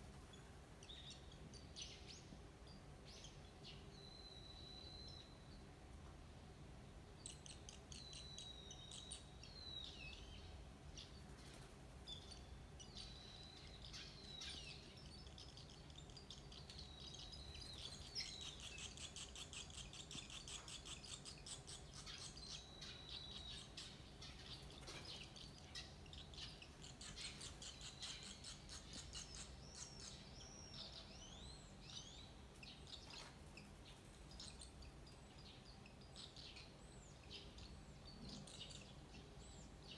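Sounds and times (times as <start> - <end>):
swallow nestlings chirping: 12.2 - 33.6.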